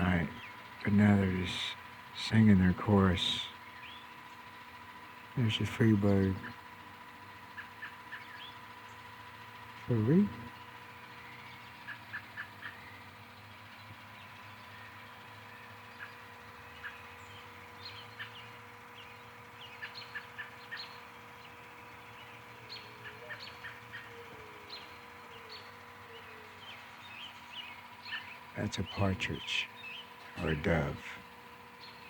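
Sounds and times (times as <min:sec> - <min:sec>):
birds chirping and calling: 0:00.0 - 0:32.0
dove cooing: 0:22.9 - 0:26.8.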